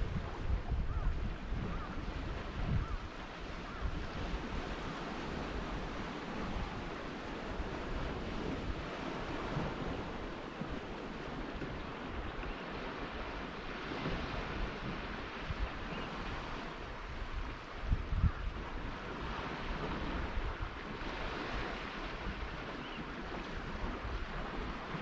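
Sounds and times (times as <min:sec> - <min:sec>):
ocean surf washing on shore: 0:00.0 - 0:25.0
wind buffeting microphone: 0:00.0 - 0:25.0.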